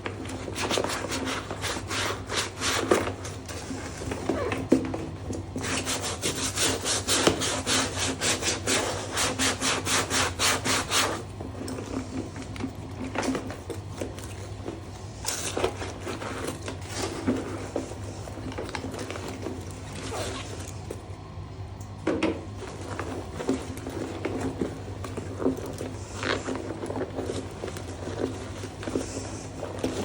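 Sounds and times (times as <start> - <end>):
rubbing on a leather bag: 0.2 - 4.5, 5.6 - 11.3.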